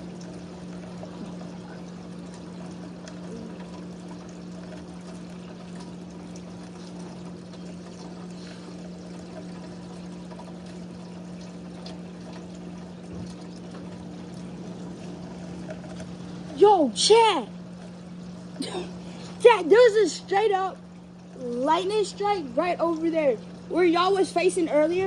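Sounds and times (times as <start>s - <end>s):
water pouring and trickling: 0.0s - 25.0s.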